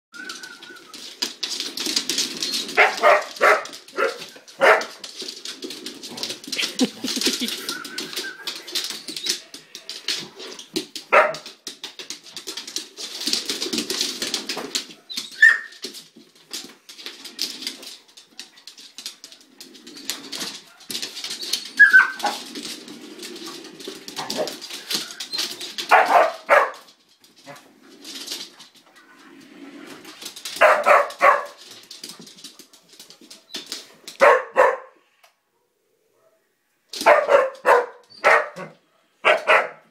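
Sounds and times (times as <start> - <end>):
scratchy rustling: 0.2 - 34.5
dogs barking: 2.8 - 5.0, 11.1 - 11.4, 25.9 - 26.9, 30.6 - 31.6, 34.2 - 35.0, 37.0 - 39.9
dog yelping or whining: 15.0 - 15.8, 20.7 - 22.4.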